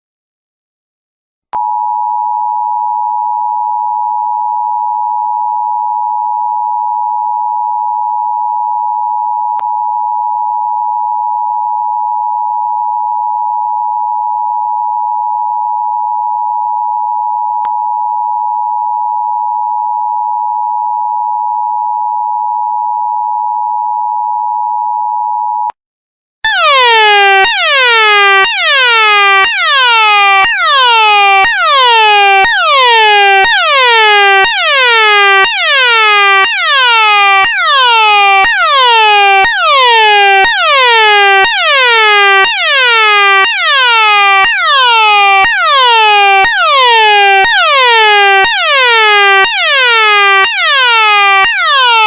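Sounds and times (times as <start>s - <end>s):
falling sweep alarm: 26.4s - 52.0s
steady emergency alert tone: 26.4s - 52.0s.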